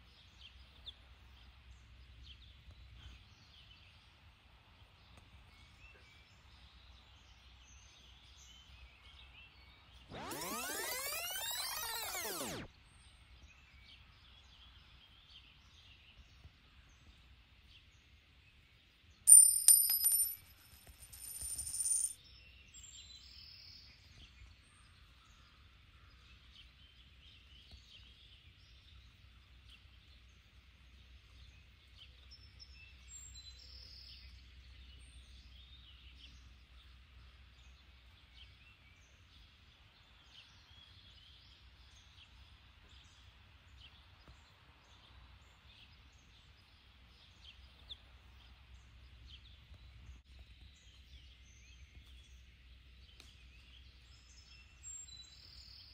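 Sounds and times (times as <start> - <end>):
high bird chirps: 10.1 - 12.7.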